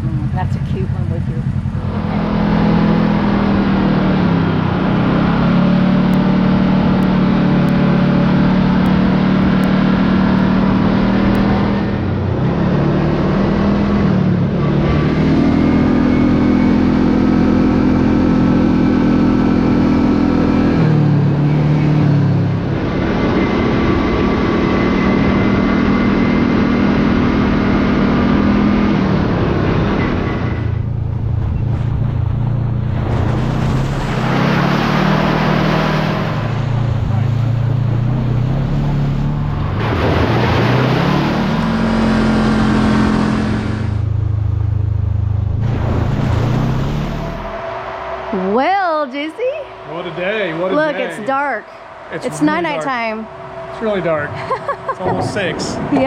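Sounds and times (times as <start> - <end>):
utility vehicle engine running: 0.0 - 56.0.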